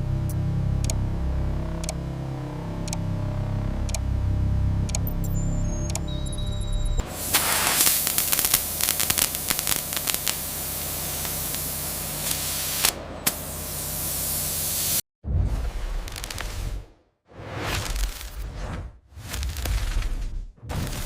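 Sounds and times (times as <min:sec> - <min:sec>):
low hum: 0:00.0 - 0:14.8
loud crackling hiss: 0:07.0 - 0:15.0.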